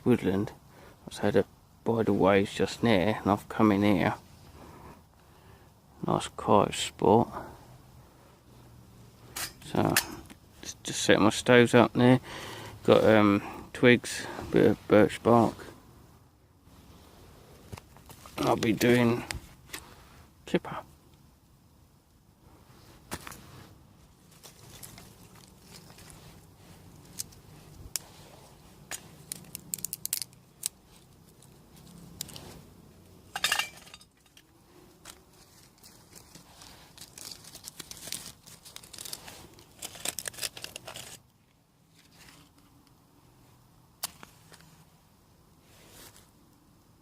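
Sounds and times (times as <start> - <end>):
bark tearing and crinkling: 24.2 - 32.6, 34.2 - 42.6
dry twigs snapping: 24.3 - 32.5, 33.4 - 41.2, 44.0 - 44.7.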